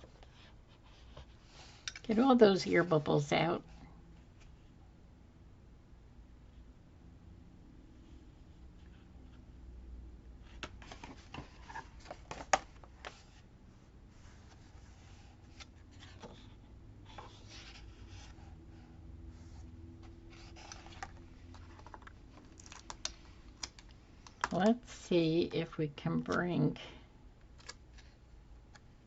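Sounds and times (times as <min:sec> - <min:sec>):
paper rustling: 0:20.3 - 0:24.7.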